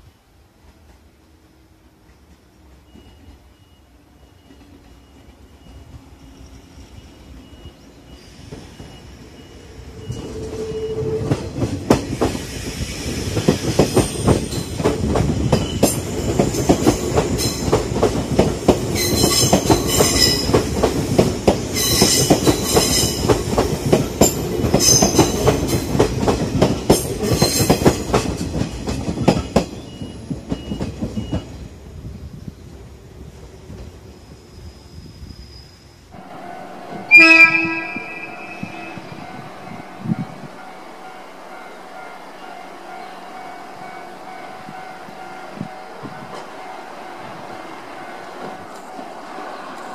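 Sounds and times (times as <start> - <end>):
train wheels clacking over rail joints: 11.2 - 31.5
high-pitched wheel squeal: 34.5 - 40.6.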